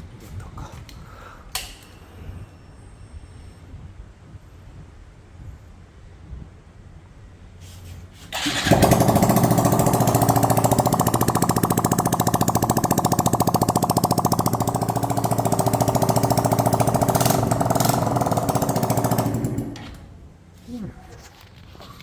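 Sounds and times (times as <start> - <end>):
motorcycle engine idling: 8.4 - 20.5.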